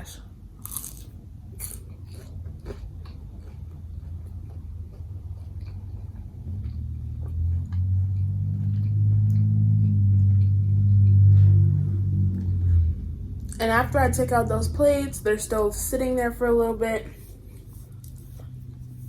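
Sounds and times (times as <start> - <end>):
low steady hum: 0.0 - 19.0
chewing sandwich: 0.6 - 12.6, 17.2 - 19.0
wet mouth clicks: 8.2 - 11.2.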